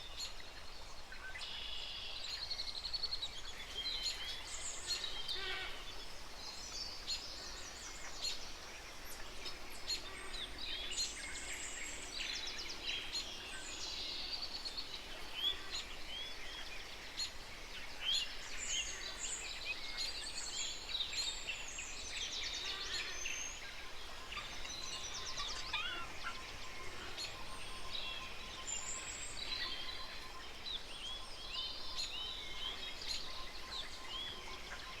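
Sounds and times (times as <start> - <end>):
small birds chirping and twittering: 0.0 - 35.0.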